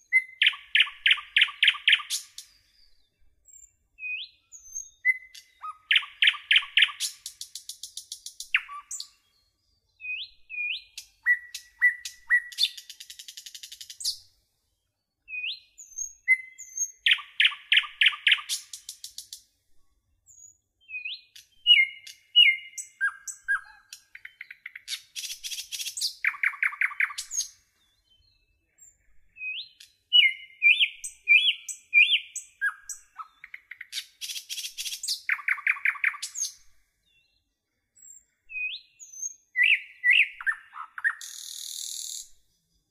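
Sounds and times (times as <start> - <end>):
bird chirps and trills: 0.0 - 14.3, 15.2 - 19.4, 20.3 - 37.4, 38.0 - 42.6.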